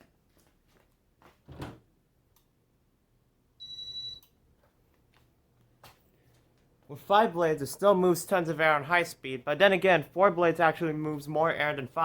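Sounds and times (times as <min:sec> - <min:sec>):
short electronic beep: 0:03.6 - 0:04.2.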